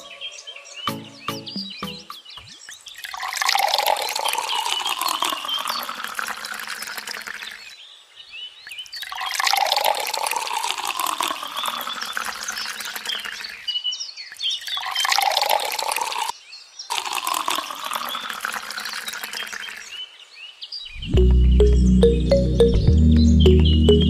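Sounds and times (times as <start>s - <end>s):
bird chirp: 0.0s - 3.2s, 19.3s - 24.0s
water pouring and splashing: 2.5s - 7.7s, 8.7s - 13.7s, 14.3s - 20.0s.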